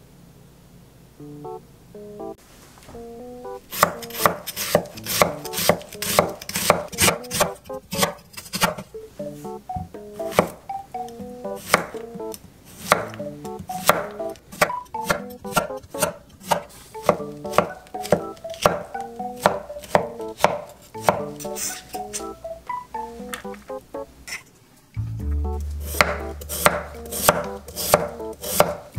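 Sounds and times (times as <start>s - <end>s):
light background music: 1.2s - 2.4s, 3.0s - 24.3s, 25.0s - 28.9s
knife chopping on wooden board: 3.7s - 8.9s, 10.2s - 10.6s, 11.6s - 12.1s, 12.7s - 22.2s, 25.8s - 28.9s.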